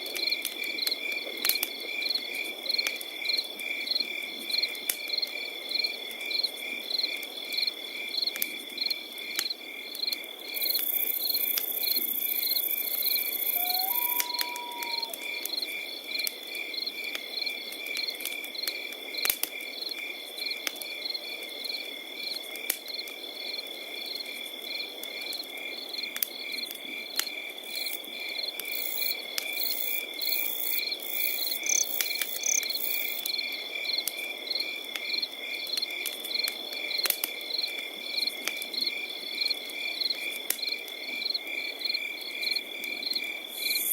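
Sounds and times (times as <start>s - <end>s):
campfire crackling: 0.0s - 43.9s
crickets chirping: 2.0s - 18.1s, 19.8s - 43.9s
short whistled note: 13.6s - 15.1s.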